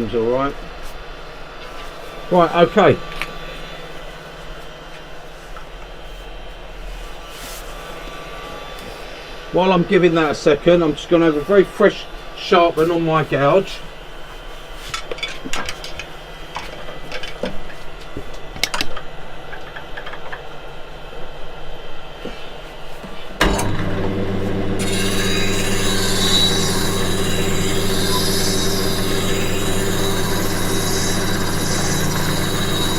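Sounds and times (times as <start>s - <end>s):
bench grinder motor hum: 1.7s - 6.0s, 23.4s - 32.9s
high grinding hiss of steel: 23.5s - 32.9s.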